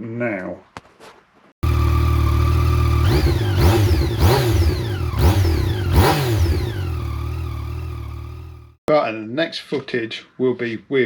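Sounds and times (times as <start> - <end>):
motorcycle engine idling and revving: 1.6 - 8.8.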